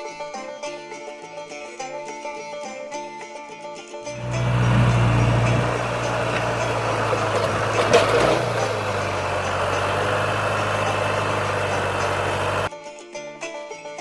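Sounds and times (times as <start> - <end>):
vehicle engine running: 4.2 - 12.7.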